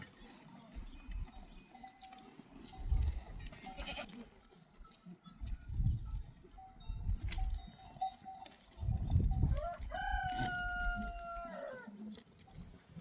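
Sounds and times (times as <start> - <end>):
rooster crowing: 9.5 - 11.9.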